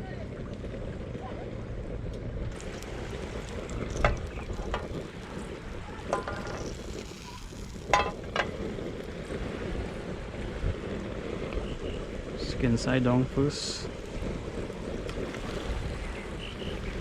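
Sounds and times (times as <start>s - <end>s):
wind on microphone: 0.0s - 17.0s
butter sizzling in a pan: 2.5s - 9.3s.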